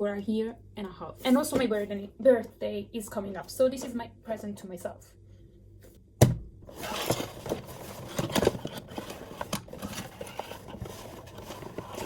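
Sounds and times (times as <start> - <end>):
packaging rustling: 6.7 - 12.0.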